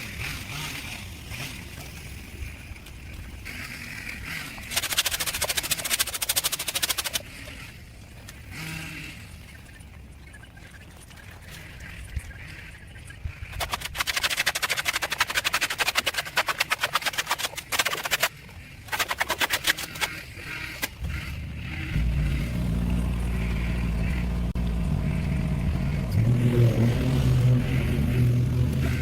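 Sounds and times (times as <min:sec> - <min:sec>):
small engine humming: 0:00.0 - 0:29.0
fast rattling clatter: 0:04.3 - 0:07.3, 0:13.4 - 0:21.9.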